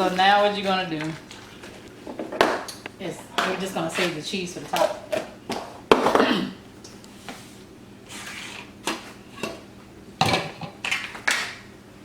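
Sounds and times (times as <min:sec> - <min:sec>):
cookware and utensils clattering: 0:10.2 - 0:11.6.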